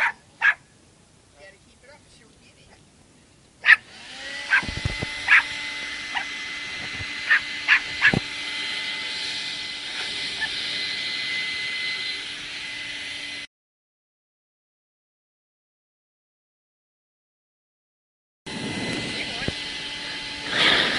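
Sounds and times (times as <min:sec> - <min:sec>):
dog barking: 0:00.0 - 0:00.6, 0:03.6 - 0:03.9, 0:04.5 - 0:06.3, 0:07.3 - 0:08.2
vacuum cleaner motor whine: 0:03.8 - 0:13.5, 0:18.5 - 0:20.9.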